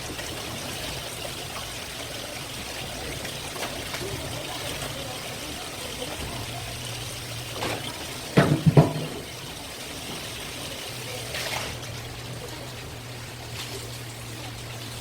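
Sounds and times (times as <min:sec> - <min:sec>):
water running and trickling: 0:00.0 - 0:15.0.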